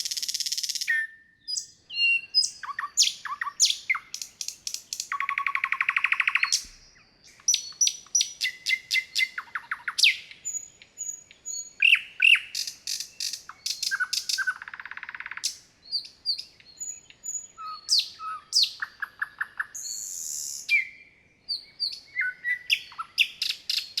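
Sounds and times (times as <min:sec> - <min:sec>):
songbirds singing: 0:00.0 - 0:24.0.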